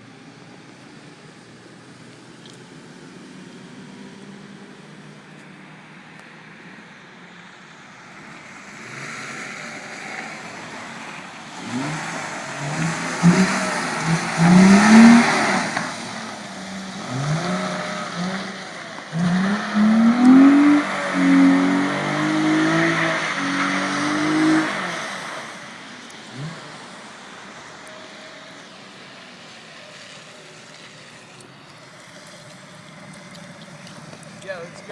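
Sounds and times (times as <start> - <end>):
car engine revving hard: 8.6 - 27.6
tyres spinning on snow: 24.9 - 34.9.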